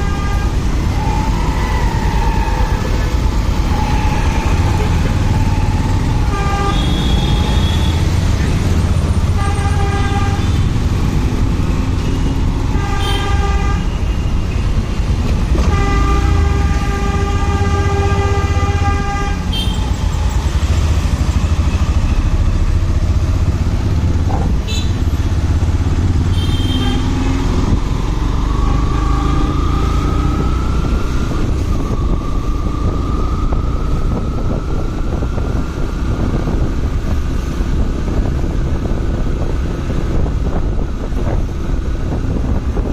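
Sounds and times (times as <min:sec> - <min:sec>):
vehicle horns honking: 0:06.2 - 0:08.1, 0:09.3 - 0:10.7, 0:12.7 - 0:14.0, 0:15.6 - 0:20.0, 0:24.6 - 0:25.0, 0:26.3 - 0:27.2.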